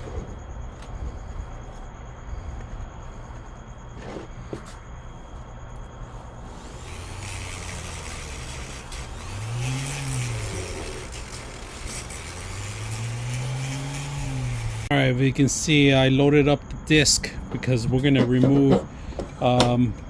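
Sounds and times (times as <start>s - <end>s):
rotary grinder motor humming: 6.4s - 14.9s.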